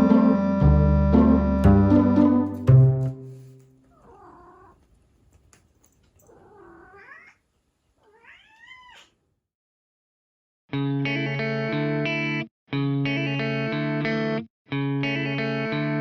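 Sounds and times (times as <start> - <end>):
cat meowing: 3.9 - 4.8, 6.2 - 7.4, 8.0 - 9.2.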